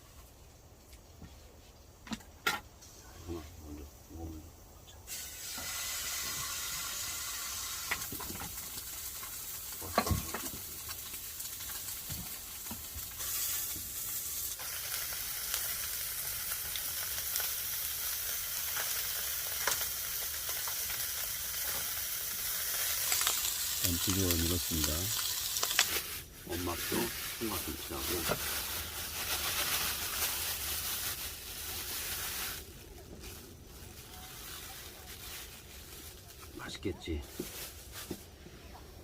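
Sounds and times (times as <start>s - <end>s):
beef sizzling: 4.6s - 38.8s.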